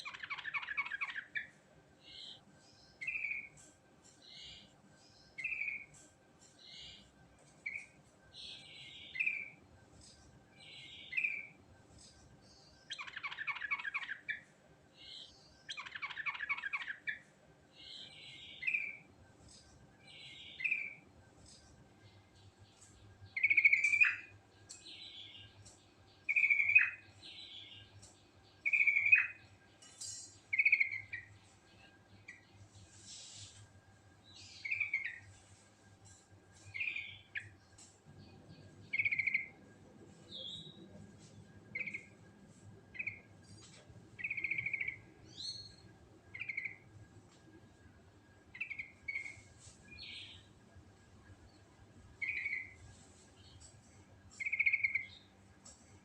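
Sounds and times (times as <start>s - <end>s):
rapid bird chattering: 0.0s - 1.5s, 15.7s - 17.2s, 38.9s - 39.6s, 44.2s - 45.1s.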